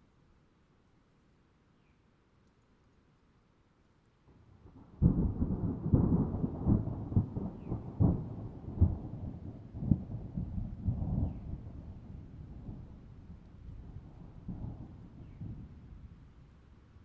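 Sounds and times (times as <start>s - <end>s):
thunder rumbling and clapping: 4.8s - 15.9s.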